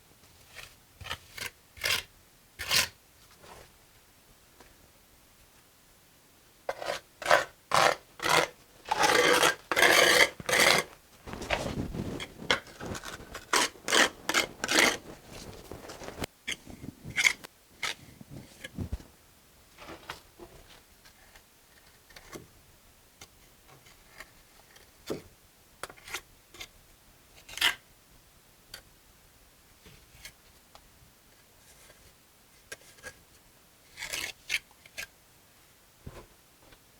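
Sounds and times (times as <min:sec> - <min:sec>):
trowel scraping mortar on brick: 0:06.7 - 0:18.0.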